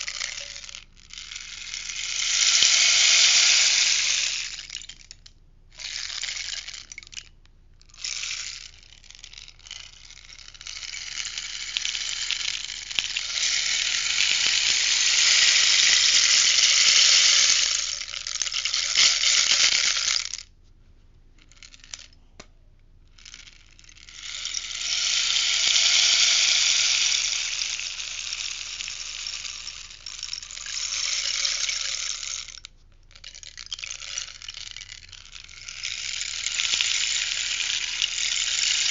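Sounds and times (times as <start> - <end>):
rainstick beads rattling: 0.0 - 20.5, 21.4 - 22.2, 23.1 - 38.9.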